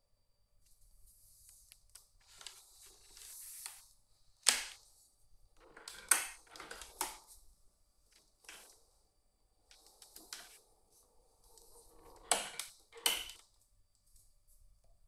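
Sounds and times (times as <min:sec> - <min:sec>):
sharp clicks and knocks: 0:11.6 - 0:13.4.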